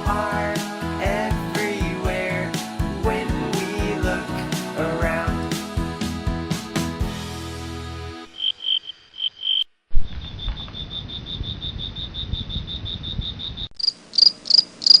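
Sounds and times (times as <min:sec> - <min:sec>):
insect chirping: 0:08.3 - 0:15.0.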